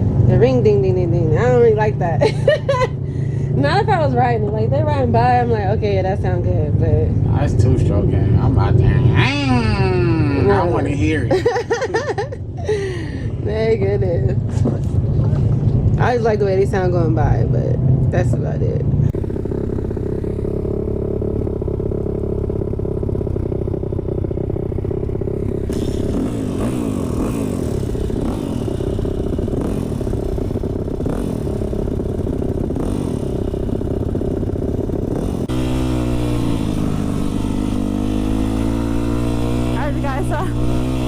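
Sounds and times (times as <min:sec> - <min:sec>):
dirt bike engines revving: 0:00.0 - 0:41.0.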